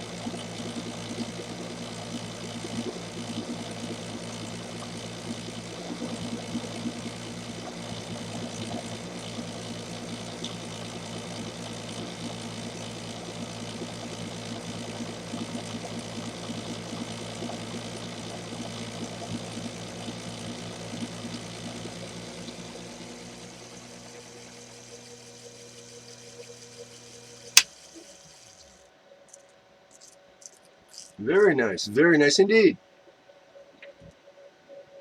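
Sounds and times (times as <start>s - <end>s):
lathe motor hum: 0.0s - 27.4s.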